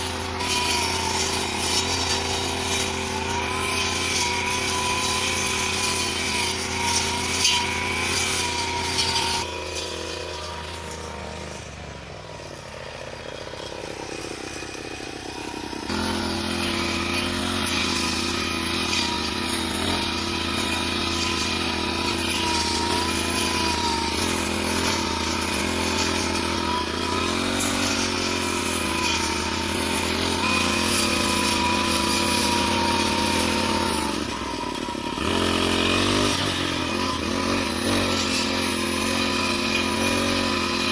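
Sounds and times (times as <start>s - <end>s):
lawn mower engine running: 0.0s - 40.9s.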